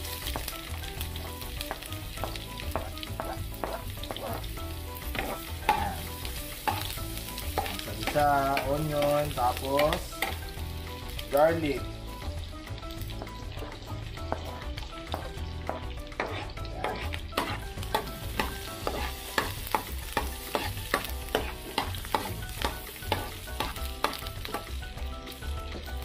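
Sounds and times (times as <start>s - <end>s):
onion sizzling in hot oil: 0.0s - 26.0s
metal spoon scraping a pan: 2.8s - 9.2s, 14.4s - 24.6s.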